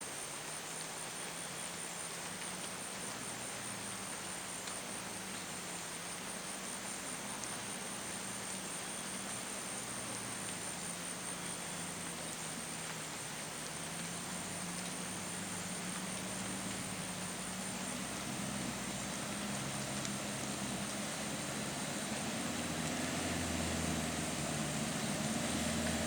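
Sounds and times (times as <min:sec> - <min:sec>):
vehicle engine idling: 0:14.6 - 0:26.0.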